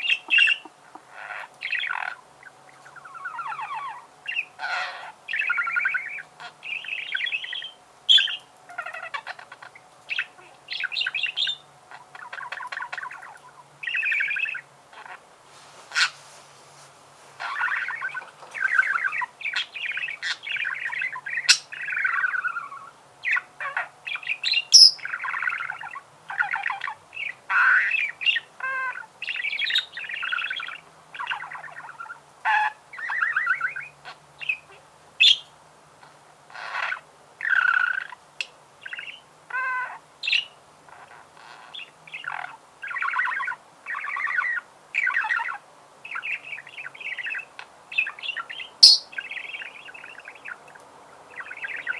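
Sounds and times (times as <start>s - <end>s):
budgerigar chirps and squawks: 0.0s - 15.2s, 17.4s - 35.5s, 36.5s - 38.2s, 38.8s - 50.6s.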